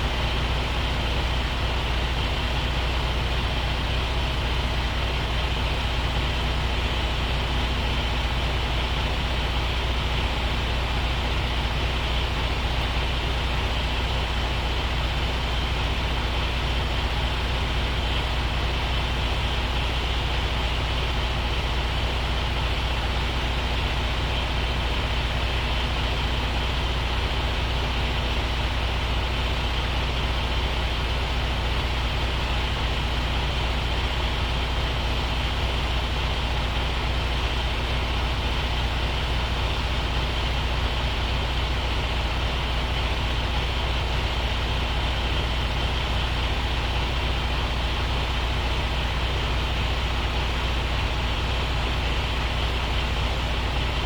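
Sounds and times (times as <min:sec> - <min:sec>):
truck diesel engine droning: 0:00.0 - 0:54.0.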